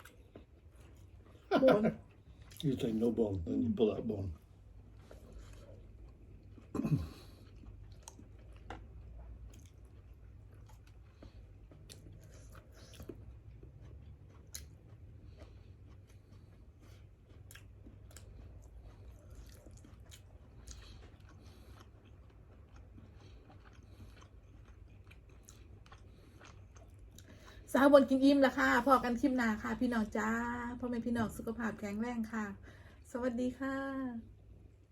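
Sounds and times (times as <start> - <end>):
person chewing fish: 0.0 - 3.0, 4.4 - 27.6.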